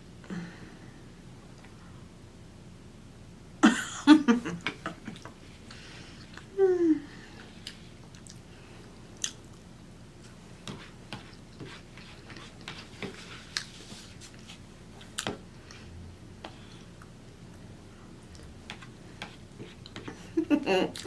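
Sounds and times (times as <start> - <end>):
person chewing food: 7.4 - 20.2.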